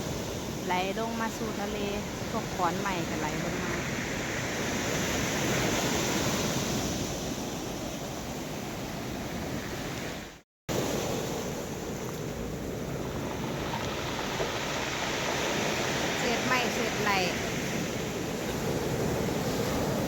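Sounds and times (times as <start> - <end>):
rough sea surf washing ashore: 0.0 - 20.0.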